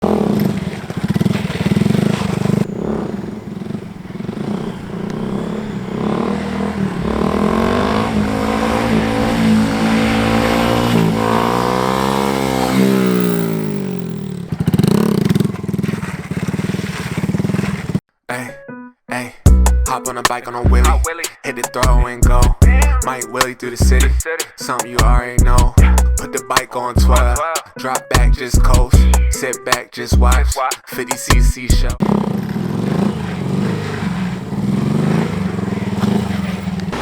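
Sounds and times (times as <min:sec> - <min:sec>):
dirt bike engine revving: 0:00.0 - 0:18.0, 0:31.8 - 0:37.0.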